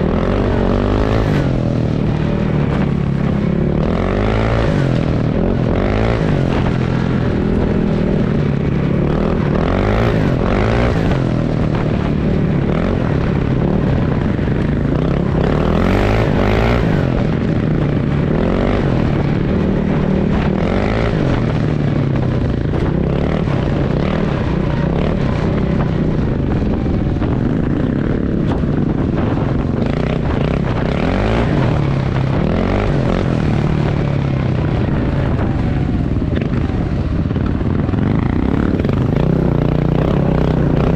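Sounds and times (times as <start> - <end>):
motorcycle engine revving: 0.0 - 40.9
wind noise: 0.0 - 40.9.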